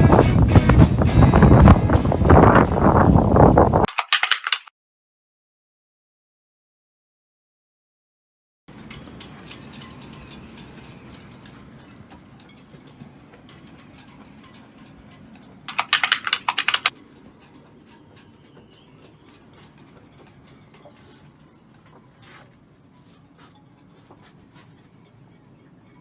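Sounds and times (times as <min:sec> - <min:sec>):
sharp mechanical clicks and knocks: 0:03.9 - 0:04.7, 0:13.6 - 0:20.9
rapid clattering strokes: 0:08.7 - 0:18.5.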